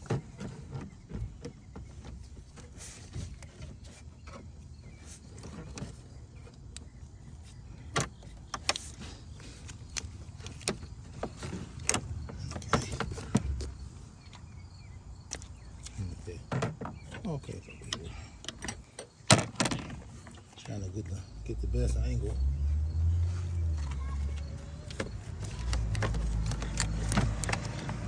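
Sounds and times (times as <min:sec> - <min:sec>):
hand tools clicking and knocking: 0:07.9 - 0:14.5, 0:24.3 - 0:28.0.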